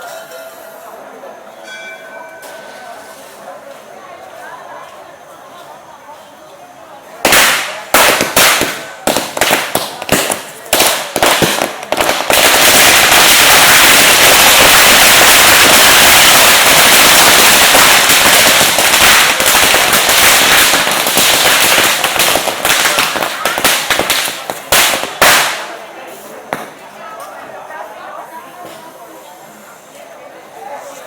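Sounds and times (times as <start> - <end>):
firecrackers banging: 7.2 - 27.0.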